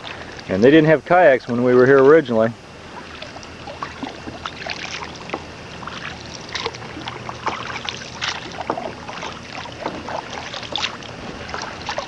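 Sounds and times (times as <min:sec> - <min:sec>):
low steady hum: 0:00.0 - 0:12.0
water splashes and drips: 0:02.9 - 0:12.0.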